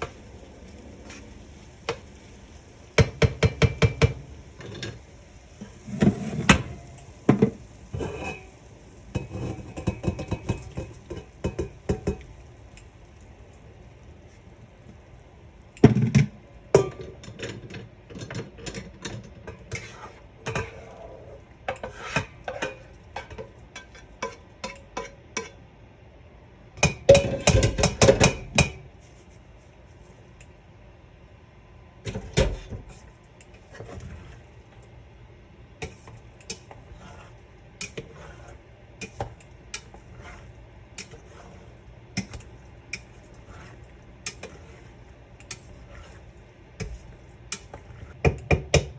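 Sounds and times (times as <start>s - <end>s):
kitchen utensils clinking: 5.8s - 12.8s, 35.8s - 48.9s.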